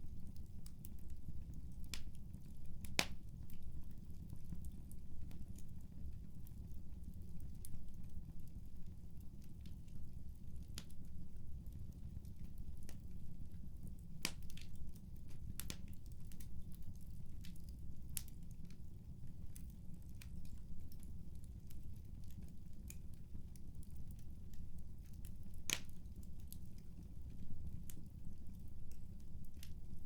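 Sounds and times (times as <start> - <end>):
wood fire crackling: 0.0 - 30.0
fire popping: 12.2 - 30.0.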